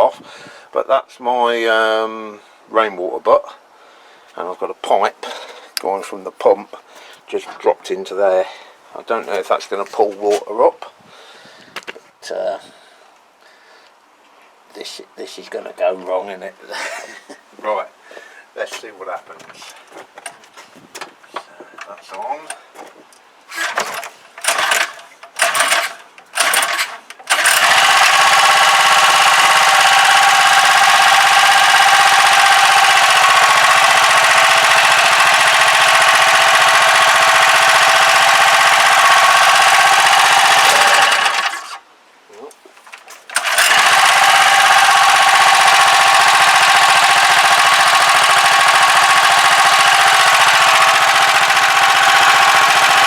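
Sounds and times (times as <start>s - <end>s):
pull-start cord pulls: 23.5s - 41.8s, 42.9s - 53.0s
small petrol engine running: 23.6s - 41.8s, 43.3s - 53.0s.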